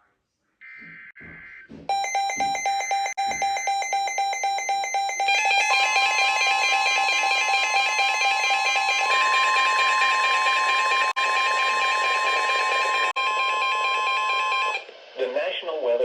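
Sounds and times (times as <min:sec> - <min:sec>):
steady warning alarm tone: 0:00.7 - 0:14.9
warbling alarm tones: 0:00.8 - 0:14.9
rapid beeping: 0:01.0 - 0:14.8.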